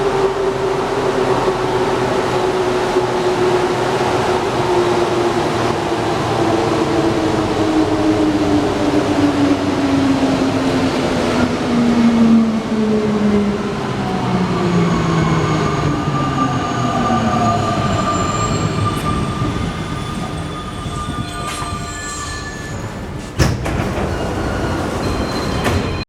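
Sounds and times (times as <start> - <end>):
metro train motor whine: 0.0 - 26.0.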